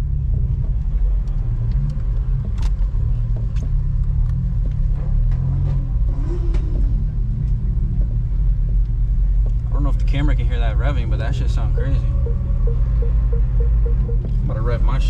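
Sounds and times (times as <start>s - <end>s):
car engine rumble from inside: 0.0s - 15.0s
car engine revving: 11.2s - 15.0s.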